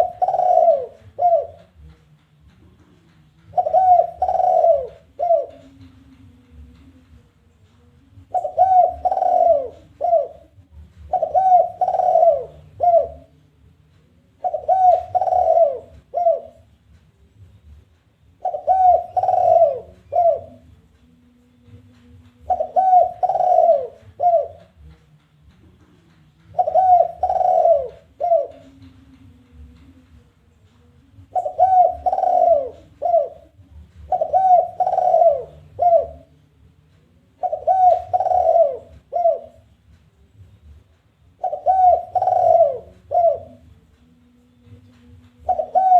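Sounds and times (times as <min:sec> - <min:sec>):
dove cooing: 0:00.0 - 0:01.9, 0:03.5 - 0:07.0, 0:08.1 - 0:13.4, 0:14.4 - 0:16.7, 0:18.4 - 0:20.8, 0:22.4 - 0:24.9, 0:26.5 - 0:30.0, 0:31.2 - 0:36.4, 0:37.4 - 0:39.8, 0:41.4 - 0:43.8, 0:44.6 - 0:45.9.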